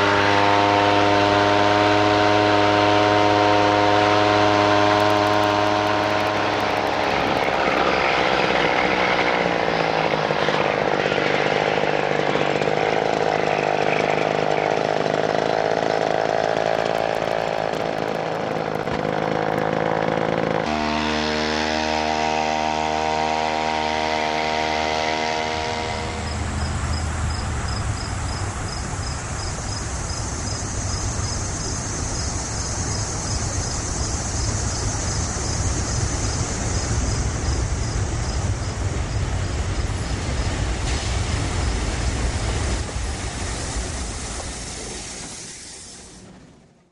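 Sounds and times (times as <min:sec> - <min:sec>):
train rumbling past: 0:00.0 - 0:46.9
chainsaw engine running: 0:03.6 - 0:26.7.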